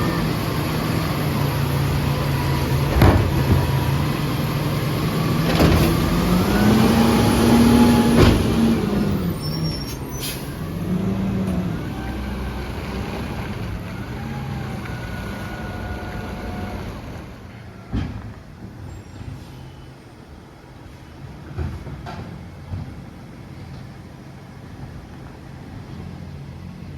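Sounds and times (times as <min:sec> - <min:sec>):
truck diesel engine revving: 0:00.0 - 0:17.5.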